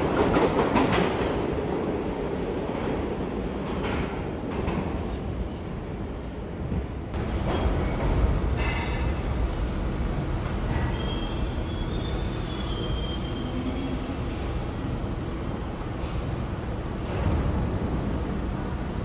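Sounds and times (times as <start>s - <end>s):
subway train rumbling: 0.0s - 19.0s
train wheels squealing: 9.8s - 16.4s.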